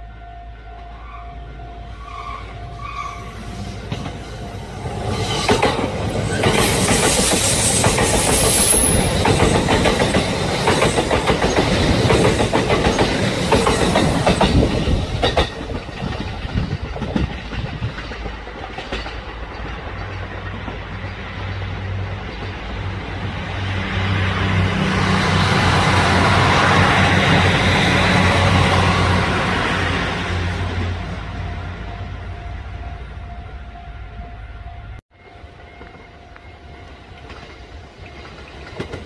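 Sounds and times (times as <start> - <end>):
train wheels clicking on rails: 3.8 - 30.0, 35.7 - 39.0.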